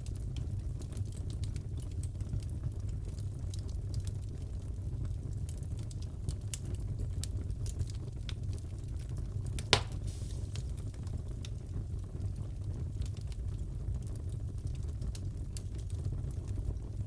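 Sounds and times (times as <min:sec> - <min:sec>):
wood fire crackling: 0:00.0 - 0:17.0
loud fire pop: 0:09.6 - 0:10.8.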